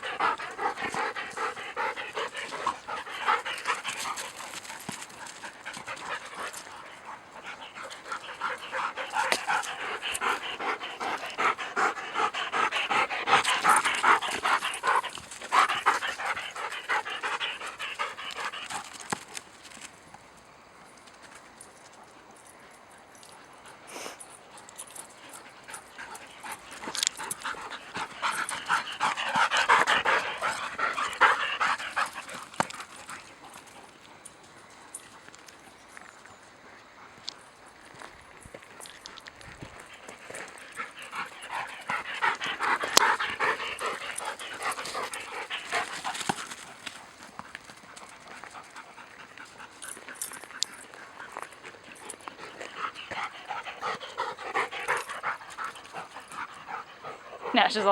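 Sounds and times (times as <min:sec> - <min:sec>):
dog panting: 0:00.0 - 0:19.3, 0:23.6 - 0:34.2, 0:39.6 - 0:57.9.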